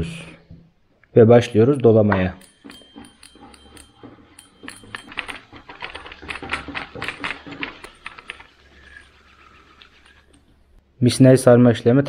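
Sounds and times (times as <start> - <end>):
fast irregular clicks: 2.4 - 10.8.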